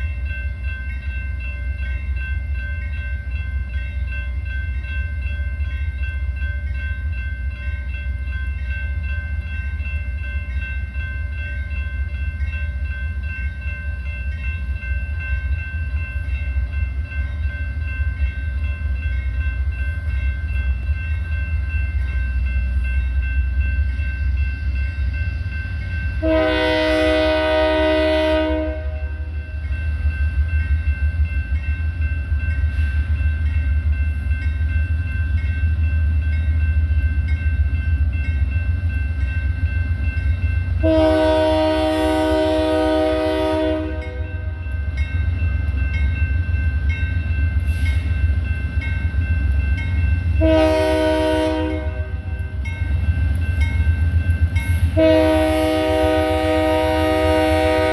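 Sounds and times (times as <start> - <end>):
freight train rumbling by: 0.0 - 57.9
locomotive horn blast: 26.2 - 29.3, 40.8 - 44.6, 50.4 - 52.3, 55.0 - 57.9.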